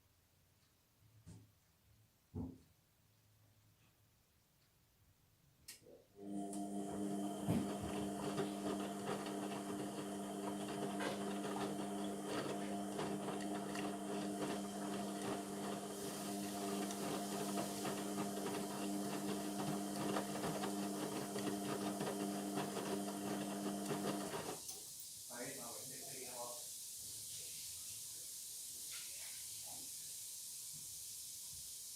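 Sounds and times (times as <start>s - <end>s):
washing machine drain pump humming: 6.2s - 24.6s.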